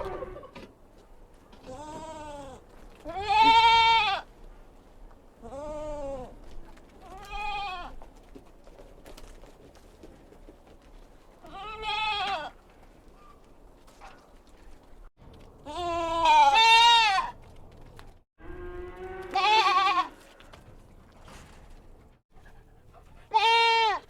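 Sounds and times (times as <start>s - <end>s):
kid goats bleating: 1.6s - 4.3s, 5.4s - 6.4s, 7.0s - 8.0s, 11.4s - 12.6s, 15.6s - 17.4s, 19.2s - 20.3s, 23.3s - 24.0s.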